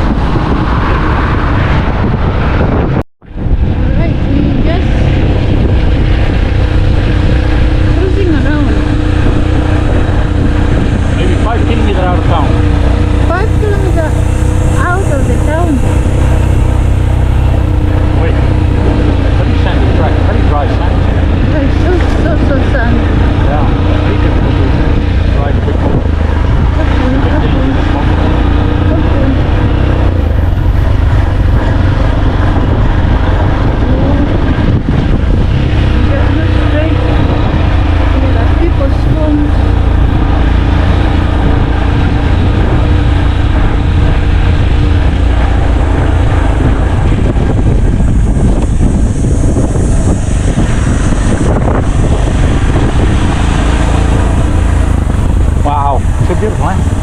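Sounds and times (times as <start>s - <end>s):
vehicle engine rumbling: 0.0s - 57.0s
wind buffeting microphone: 0.0s - 57.0s.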